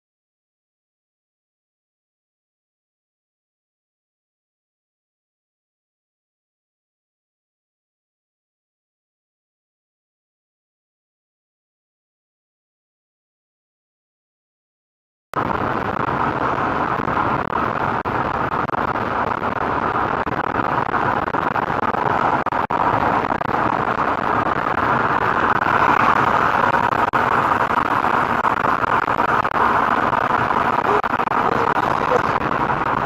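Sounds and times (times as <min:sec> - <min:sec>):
car road and engine noise: 0:15.4 - 0:33.0.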